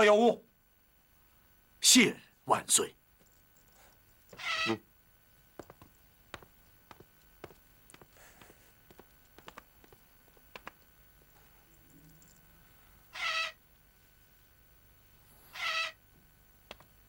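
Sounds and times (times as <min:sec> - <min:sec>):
bird squawking: 0:04.3 - 0:04.8, 0:13.1 - 0:13.6, 0:15.5 - 0:16.0
faint clicks and taps: 0:05.6 - 0:12.5, 0:16.6 - 0:17.0.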